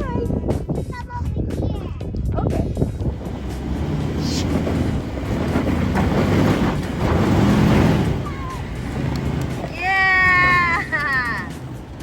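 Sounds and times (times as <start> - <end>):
wind on microphone: 0.0 - 9.7
off-road vehicle engine under load: 2.7 - 12.0.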